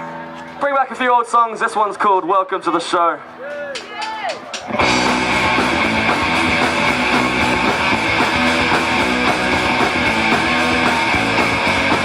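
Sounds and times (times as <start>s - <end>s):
drums with steady beat: 3.8s - 12.0s
bass guitar: 4.6s - 12.0s
electric guitars strummed: 4.6s - 12.0s.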